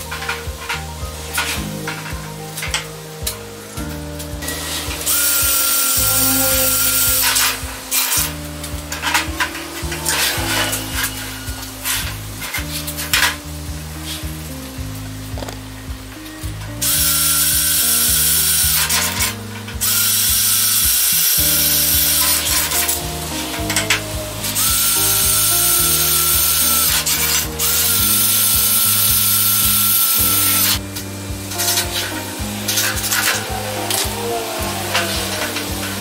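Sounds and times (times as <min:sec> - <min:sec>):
background music: 0:00.0 - 0:36.0
cordless drill whining: 0:04.4 - 0:11.8, 0:16.8 - 0:30.8.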